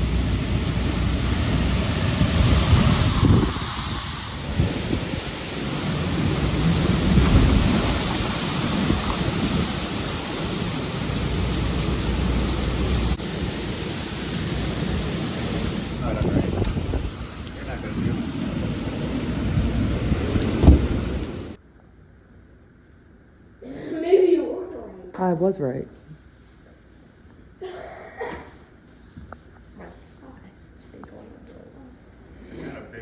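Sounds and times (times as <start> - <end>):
heavy rain: 0.0 - 21.6
low rumble: 0.0 - 21.6
wind: 0.0 - 33.0.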